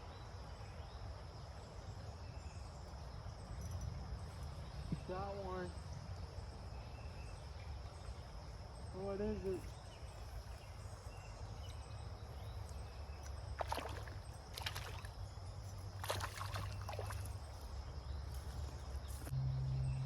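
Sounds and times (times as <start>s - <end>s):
high insect drone: 0.1s - 20.0s
water splashing: 12.6s - 17.8s.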